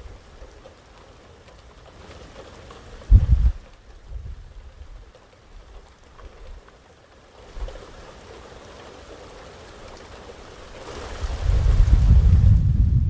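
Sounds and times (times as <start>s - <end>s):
steady rain falling: 0.0s - 13.0s
short low rumbles: 3.1s - 4.3s.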